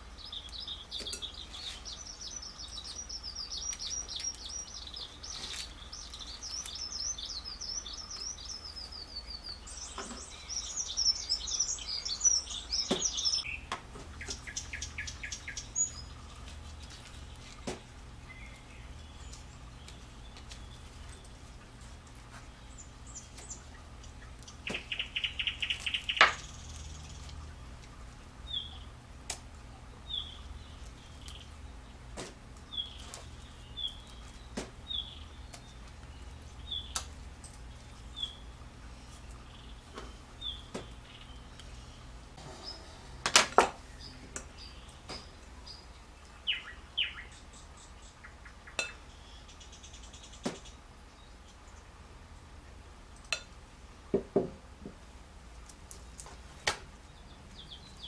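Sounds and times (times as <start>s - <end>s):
bird trill: 0.2s - 16.2s, 24.5s - 27.2s, 44.0s - 50.4s
small bird chirping: 0.2s - 16.3s, 22.5s - 27.5s, 28.4s - 29.0s, 32.7s - 42.0s, 43.8s - 51.8s.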